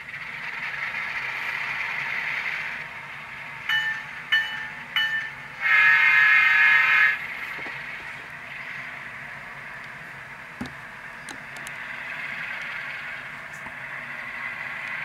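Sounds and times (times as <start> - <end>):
diesel engine running: 0.0 - 15.0
locomotive horn toots: 5.6 - 7.3.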